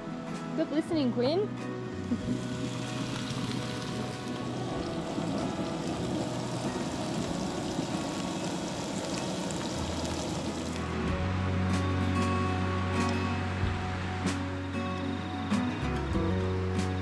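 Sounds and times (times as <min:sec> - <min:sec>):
faint background music: 0:00.0 - 0:17.0
food sizzling on a griddle: 0:02.2 - 0:10.9.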